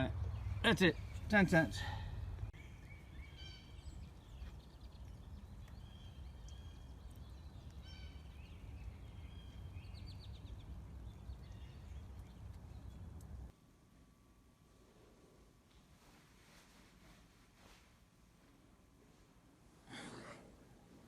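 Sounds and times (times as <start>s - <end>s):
small birds chirping: 0.0s - 13.5s
steady low rumble: 0.0s - 13.6s.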